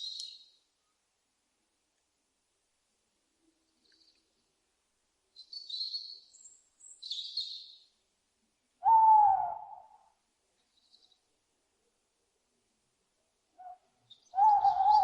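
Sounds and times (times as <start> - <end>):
owl screeching: 8.8 - 9.9, 14.4 - 15.0
owl hooting: 8.8 - 10.2, 13.6 - 15.0.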